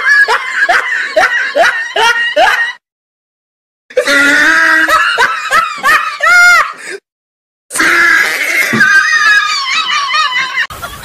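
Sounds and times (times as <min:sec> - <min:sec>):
person laughing: 0:00.0 - 0:02.8, 0:08.2 - 0:11.0.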